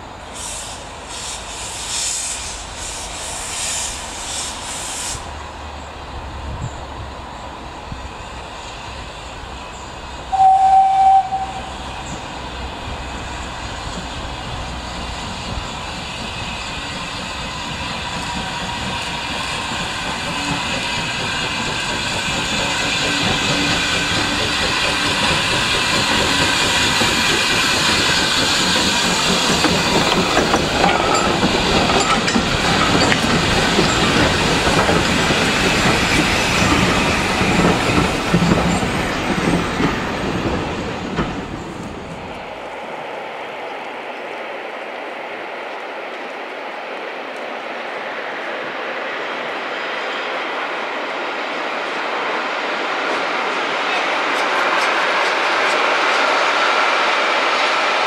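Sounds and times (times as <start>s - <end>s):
steam train rumbling past: 0.0s - 58.0s
wheel clatter over rail joints: 22.3s - 42.2s.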